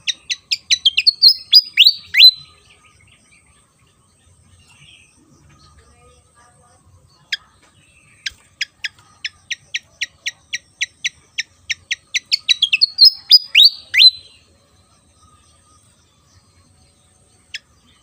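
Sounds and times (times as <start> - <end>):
bird chirping: 0.0 - 18.0
bird slurred whistles: 0.4 - 2.4, 12.2 - 14.3.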